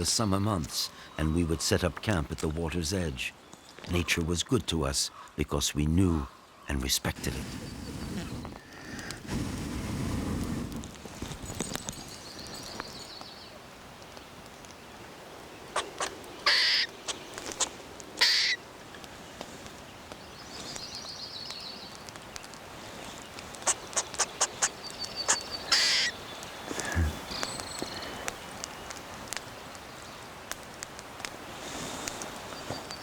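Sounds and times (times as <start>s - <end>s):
harsh bird calls: 14.5s - 30.4s
bird chittering trill: 15.7s - 18.6s, 23.6s - 26.3s
sharp clicks: 23.3s - 26.5s.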